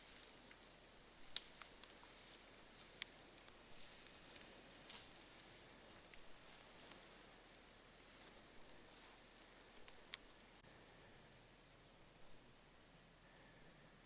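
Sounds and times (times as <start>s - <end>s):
brush and twigs rustling: 0.0s - 10.6s.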